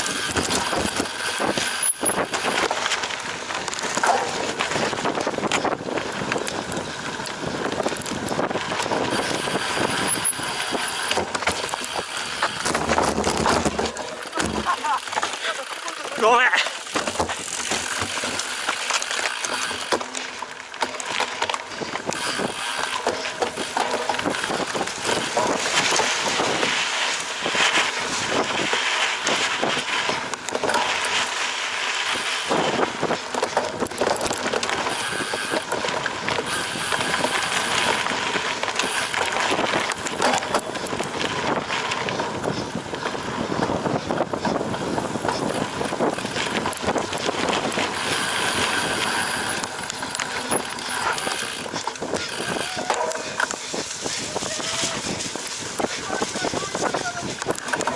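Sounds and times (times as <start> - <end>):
bike rattling over bumpy ground: 0.0 - 57.9
bike tyre noise: 0.0 - 57.9.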